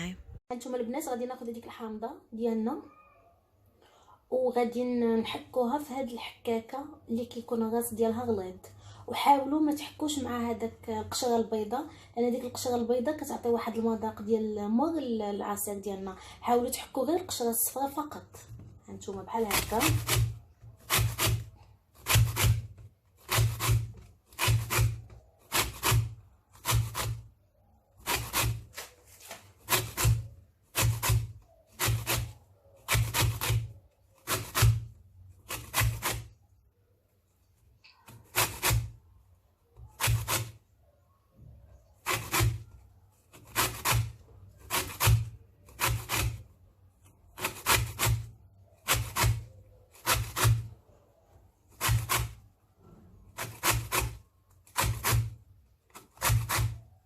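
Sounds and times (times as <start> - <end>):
grater rasping: 18.5 - 27.3, 28.0 - 36.4, 37.9 - 39.0, 39.8 - 40.6, 42.0 - 46.6, 47.3 - 50.8, 51.7 - 52.5, 53.2 - 57.0.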